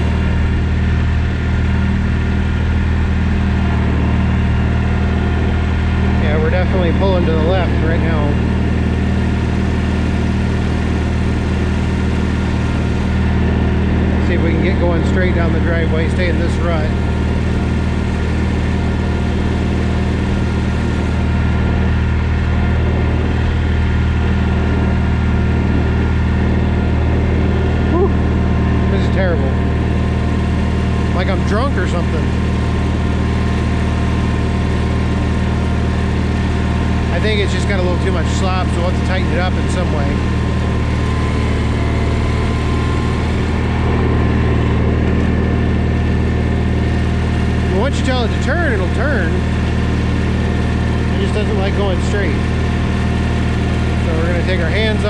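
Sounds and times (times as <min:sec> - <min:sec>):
garden tractor engine humming: 0:00.0 - 0:55.0.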